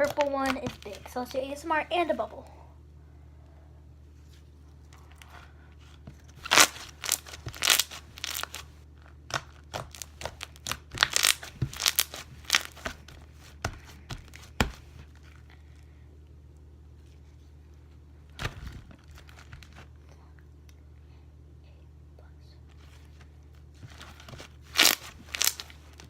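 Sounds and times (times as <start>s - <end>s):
slime squished by hand: 6.4s - 15.5s, 24.7s - 26.0s.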